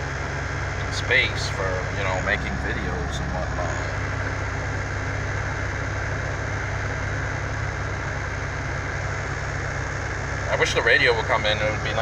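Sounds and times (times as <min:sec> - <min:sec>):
car engine and road noise drone: 0:00.0 - 0:12.0.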